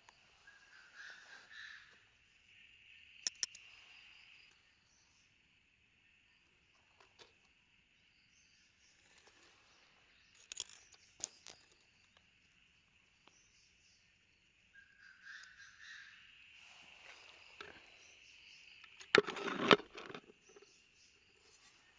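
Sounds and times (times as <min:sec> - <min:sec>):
insects chirring: 0:00.0 - 0:21.9
sharp clicks and rustles: 0:10.4 - 0:11.9, 0:18.8 - 0:20.6.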